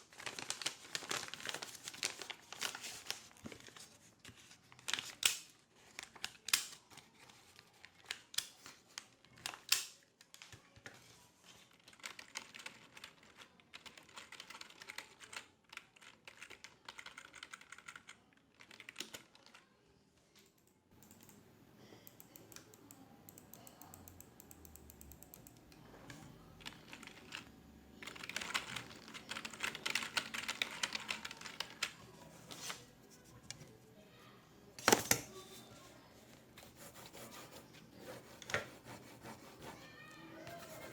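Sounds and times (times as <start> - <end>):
typing on a computer keyboard: 11.7 - 19.6, 20.6 - 21.4, 22.0 - 25.7, 26.6 - 32.0.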